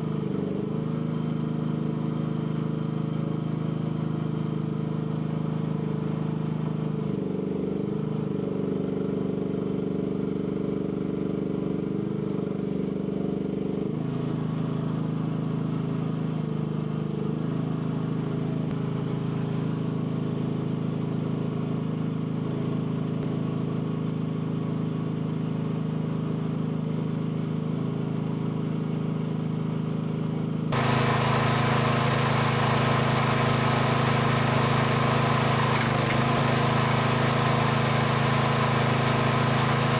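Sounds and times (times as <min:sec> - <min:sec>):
mini excavator engine running: 0:30.8 - 0:39.9.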